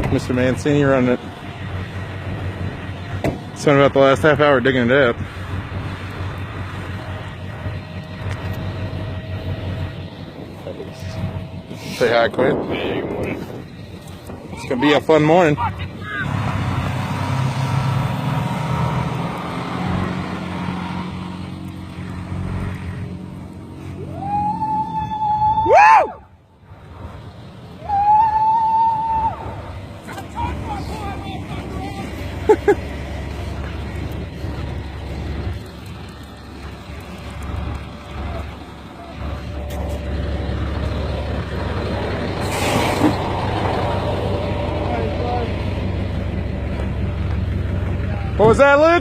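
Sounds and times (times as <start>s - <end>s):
heavy truck engine running: 0.0s - 24.8s, 29.0s - 49.0s
brief hiss: 42.4s - 43.2s.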